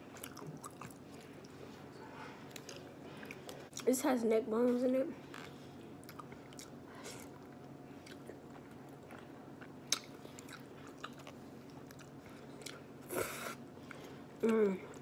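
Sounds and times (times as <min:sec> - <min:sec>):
chewing and lip smacking: 0:00.1 - 0:01.6, 0:02.4 - 0:03.9, 0:05.3 - 0:13.0.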